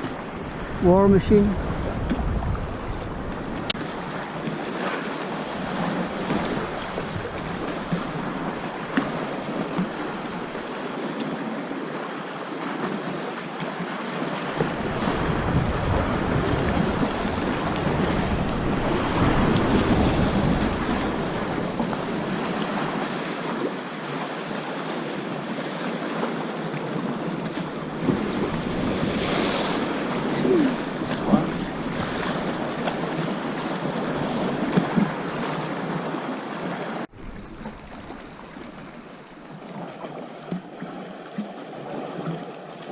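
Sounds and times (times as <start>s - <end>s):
wind buffeting microphone: 0.0s - 4.5s, 5.4s - 10.7s, 14.6s - 23.1s, 27.3s - 35.8s
water splashing around a kayak: 0.0s - 42.9s.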